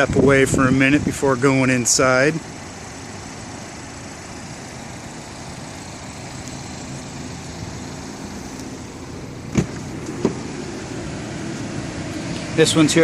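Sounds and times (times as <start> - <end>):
car humming: 0.0 - 13.0
car door clacks: 9.5 - 10.6.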